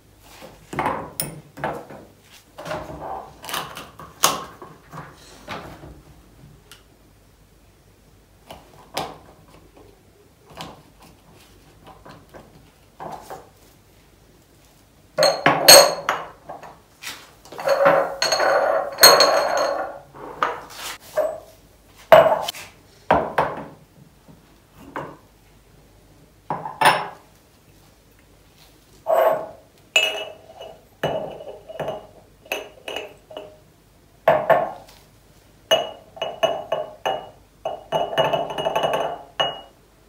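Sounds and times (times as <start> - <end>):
glass clinking: 15.2 - 16.4, 17.5 - 20.0, 26.5 - 27.2, 29.1 - 33.6, 35.7 - 39.8
glass jars being set down: 15.2 - 16.7, 17.5 - 20.6, 22.1 - 22.5, 26.5 - 27.2, 29.2 - 33.6, 34.3 - 34.9, 35.7 - 39.7.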